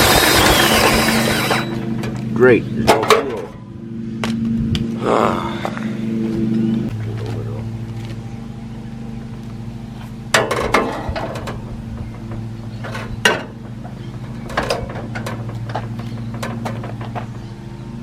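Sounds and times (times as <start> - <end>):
engine cranking without firing: 0.0 - 2.3.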